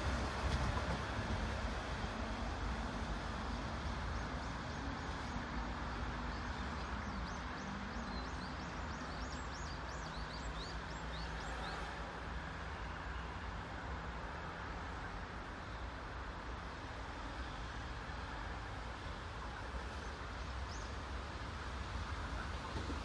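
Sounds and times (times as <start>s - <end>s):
electric train rumbling: 0.0s - 23.0s.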